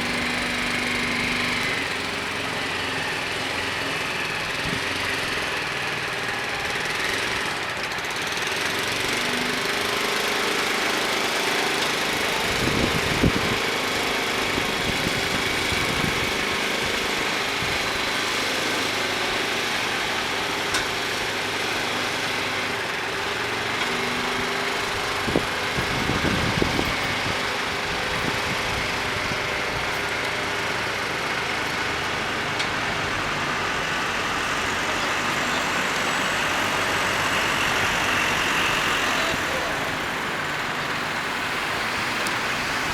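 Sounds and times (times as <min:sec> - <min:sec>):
truck diesel engine running: 0:00.0 - 0:42.9.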